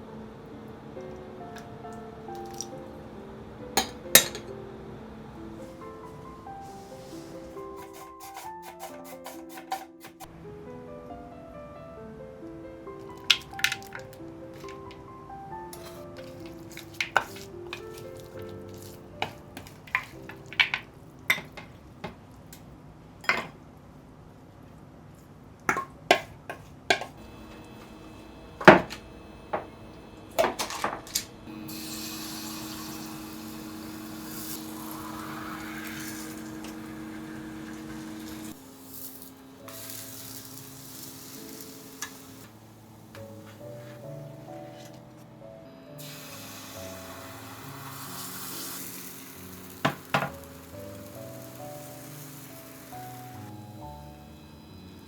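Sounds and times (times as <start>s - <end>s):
soft background music: 0.0s - 22.0s, 30.8s - 55.0s
dishes and utensils clinking: 3.8s - 4.5s, 18.8s - 21.8s, 23.2s - 23.6s
steady hiss: 31.3s - 44.8s, 45.9s - 55.0s.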